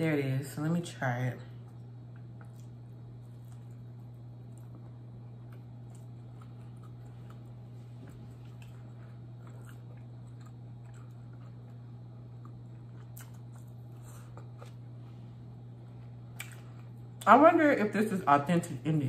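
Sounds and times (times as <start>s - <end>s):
low electrical hum: 0.0s - 19.0s
close chewing: 2.1s - 14.9s.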